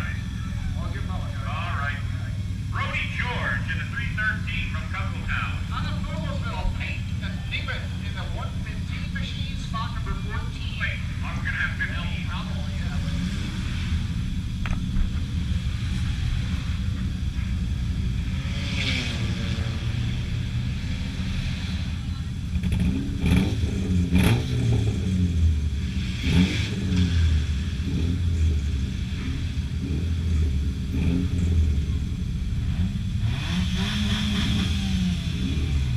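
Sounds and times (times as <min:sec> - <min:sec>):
race car engines revving: 0:00.0 - 0:35.9.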